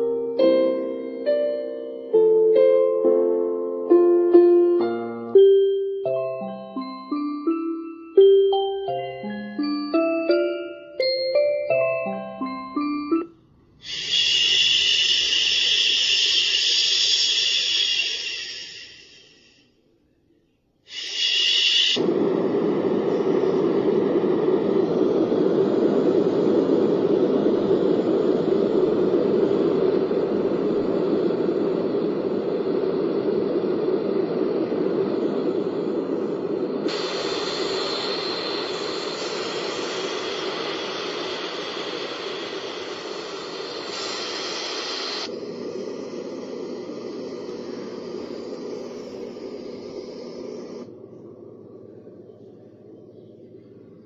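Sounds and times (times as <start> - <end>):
white noise machine rushing: 13.5 - 19.6, 20.9 - 54.0.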